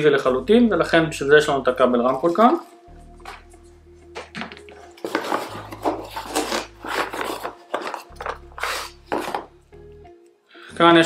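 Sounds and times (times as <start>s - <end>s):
packaging rustling: 4.2s - 9.5s.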